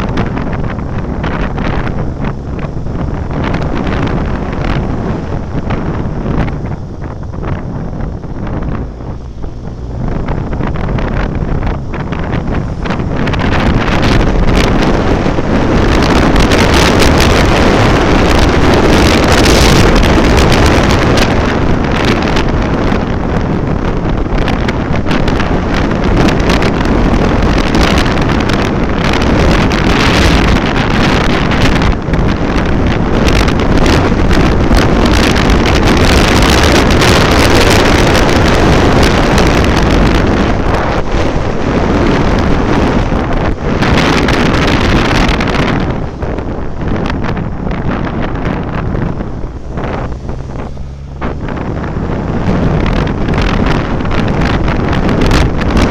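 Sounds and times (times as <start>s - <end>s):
road and engine noise: 0.0s - 55.9s
wind rushing over microphone: 0.0s - 55.9s.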